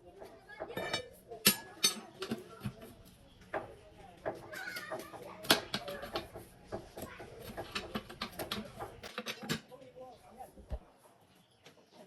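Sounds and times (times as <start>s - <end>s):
hand tools clicking and knocking: 0.2s - 9.7s.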